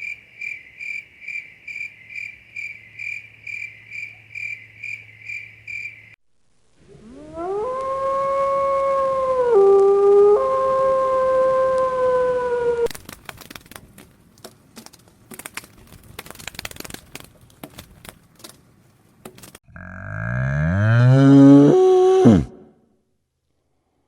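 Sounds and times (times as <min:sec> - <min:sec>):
animal howling: 0:06.9 - 0:12.9.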